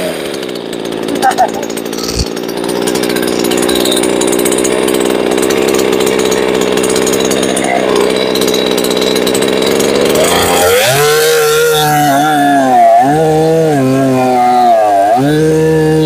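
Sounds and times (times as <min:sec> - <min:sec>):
chainsaw engine running: 0:00.0 - 0:16.0.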